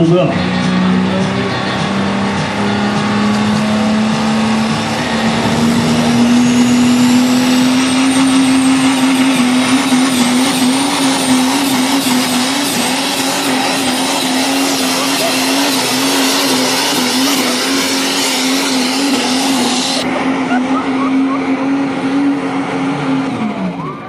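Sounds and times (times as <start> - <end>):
diesel engine running hard: 0.0 - 24.0.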